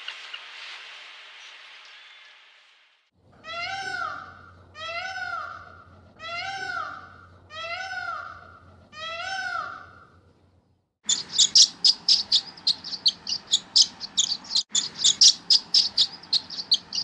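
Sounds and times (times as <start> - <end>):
cat meowing: 3.4 - 10.0.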